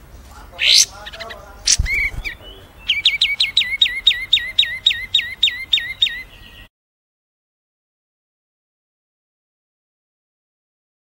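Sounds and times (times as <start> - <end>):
songbird whistling notes: 0.6 - 6.7.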